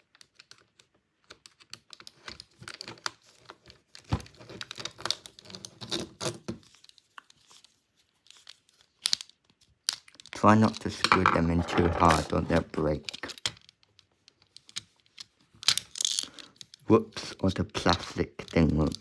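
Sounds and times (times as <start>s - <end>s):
plastic parts handled: 10.7s - 13.3s.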